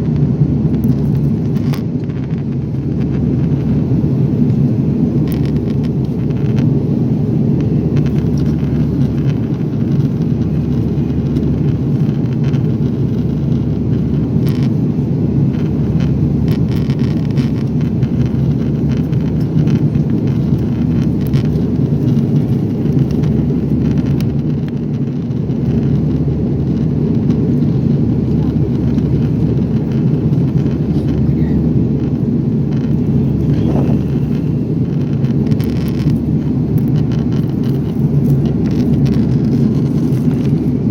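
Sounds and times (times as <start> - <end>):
airliner cabin engine rumble: 0.0 - 40.9.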